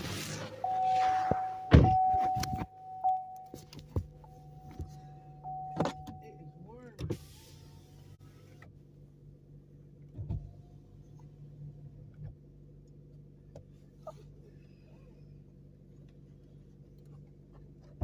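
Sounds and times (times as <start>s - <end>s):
car interior hum: 0.0s - 18.0s
dull thump: 1.2s - 2.7s.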